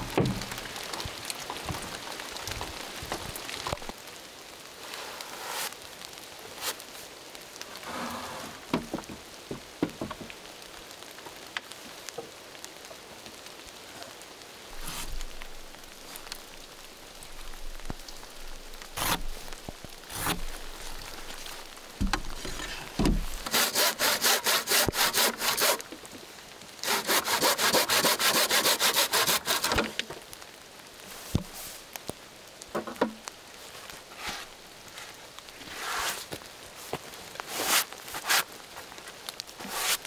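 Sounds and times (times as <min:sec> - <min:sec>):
knocks and rustles: 0:00.0 - 0:03.9, 0:08.4 - 0:10.4, 0:20.2 - 0:23.5
rapid rasping sawing strokes: 0:19.0 - 0:19.3, 0:23.4 - 0:25.8, 0:26.8 - 0:29.9.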